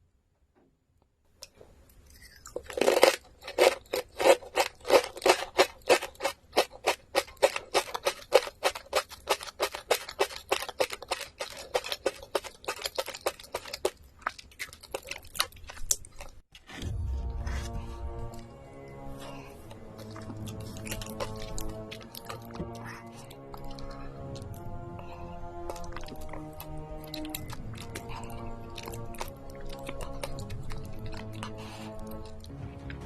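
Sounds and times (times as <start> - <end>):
crunchy food chewing: 1.4 - 16.5, 18.0 - 33.0
music: 3.5 - 10.4, 16.8 - 33.0.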